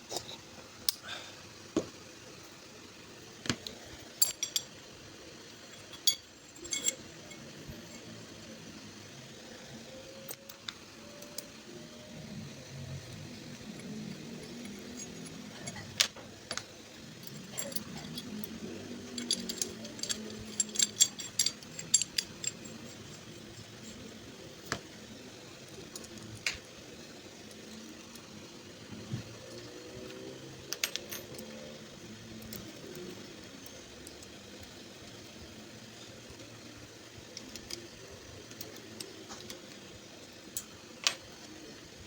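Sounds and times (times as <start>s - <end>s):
steady low hum: 0.0s - 30.2s
metal parts clinking: 4.2s - 4.7s, 5.7s - 8.1s, 13.1s - 24.8s, 30.7s - 31.7s.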